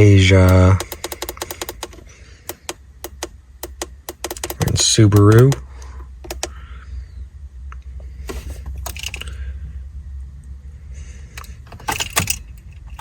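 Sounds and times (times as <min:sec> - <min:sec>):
car keys jangling: 0:00.0 - 0:05.6, 0:08.3 - 0:09.4, 0:11.4 - 0:13.0
light clicks and rattles of handling: 0:00.0 - 0:06.6, 0:07.7 - 0:09.4, 0:11.3 - 0:13.0
low steady hum: 0:00.0 - 0:13.0.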